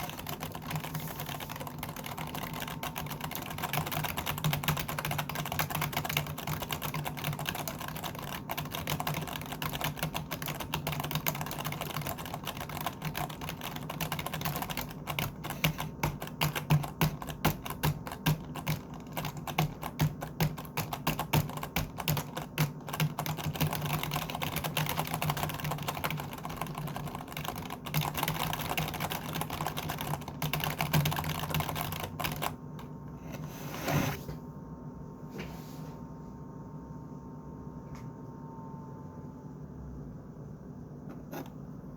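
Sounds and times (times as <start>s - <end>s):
computer keyboard typing: 0.0s - 32.6s.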